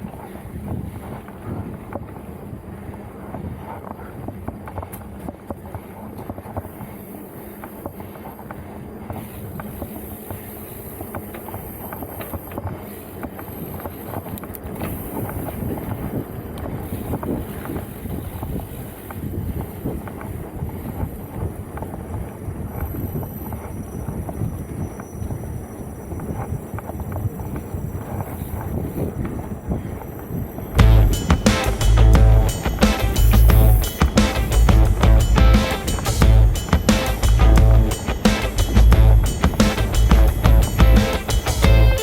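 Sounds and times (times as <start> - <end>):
bike rattling and clicking: 0.0 - 42.0
wind on microphone: 0.0 - 42.0
tyres rumbling on dirt: 30.8 - 42.0.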